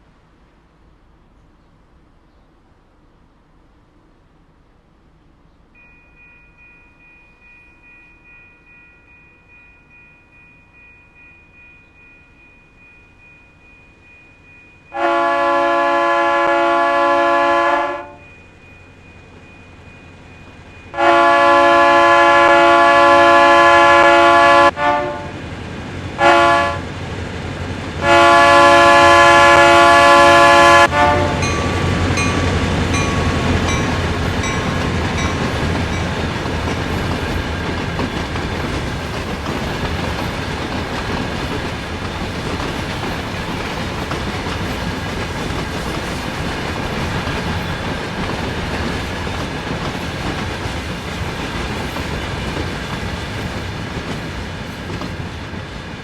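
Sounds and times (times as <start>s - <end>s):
train rumble: 0.0s - 56.0s
locomotive air horn blowing: 14.9s - 18.2s, 21.0s - 25.4s, 26.2s - 26.8s, 28.0s - 32.1s
train wheels clacking over rail joints: 31.5s - 55.6s.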